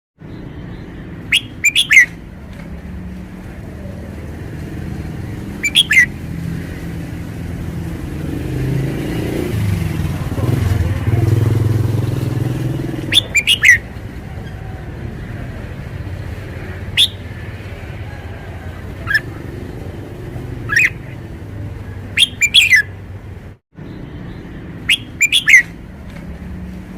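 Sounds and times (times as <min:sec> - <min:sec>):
bird singing whistled notes: 0:00.3 - 0:02.2, 0:05.6 - 0:06.2, 0:13.0 - 0:13.9, 0:16.9 - 0:17.3, 0:20.6 - 0:21.1, 0:22.1 - 0:22.9, 0:23.9 - 0:25.8.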